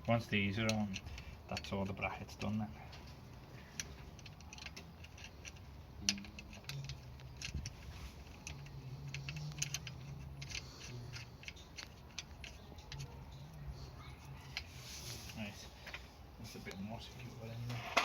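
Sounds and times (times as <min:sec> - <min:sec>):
faint low hum: 0:00.0 - 0:18.0
hand tools clicking on bolts: 0:00.4 - 0:13.2.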